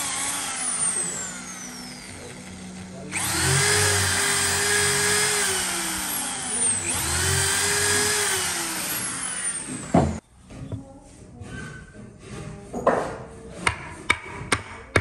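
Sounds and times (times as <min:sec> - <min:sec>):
power tool whining: 0:00.0 - 0:10.2.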